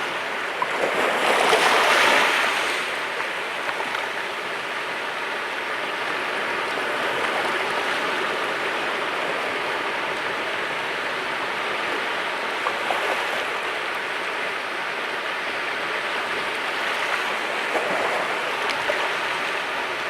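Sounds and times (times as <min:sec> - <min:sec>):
sea waves washing on shore: 0:00.0 - 0:20.0.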